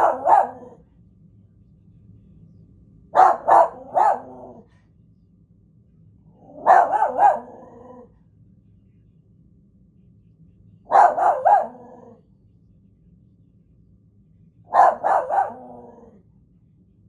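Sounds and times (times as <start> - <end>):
dog barking: 0.0 - 0.8, 3.1 - 4.7, 6.4 - 8.1, 10.9 - 12.2, 14.7 - 16.2.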